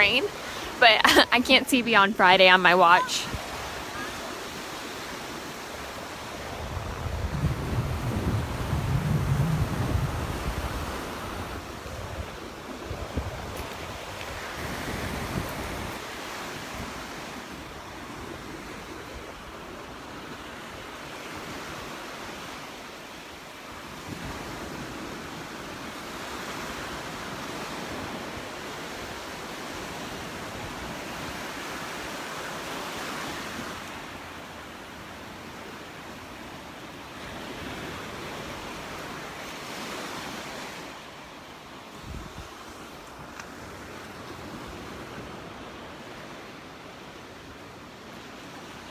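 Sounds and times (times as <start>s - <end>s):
surf washing on sandy beach: 0.0s - 48.9s
wind rumble on microphone: 6.2s - 20.6s, 41.9s - 42.7s.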